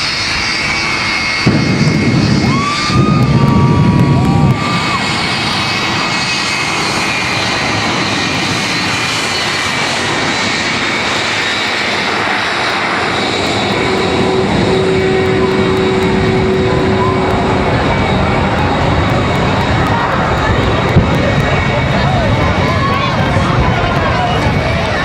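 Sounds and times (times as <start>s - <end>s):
jet engines roaring: 0.0s - 25.0s
high whine: 11.7s - 25.0s.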